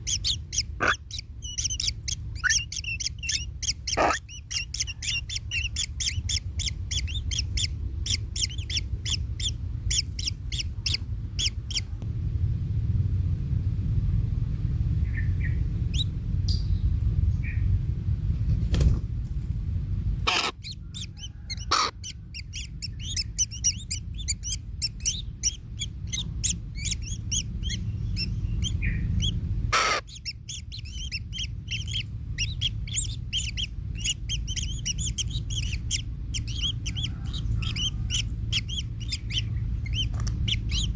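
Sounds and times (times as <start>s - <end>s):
nestlings chirping rapidly: 0.0s - 12.0s, 15.0s - 16.7s, 20.2s - 40.9s
steady low rumble: 0.0s - 40.9s.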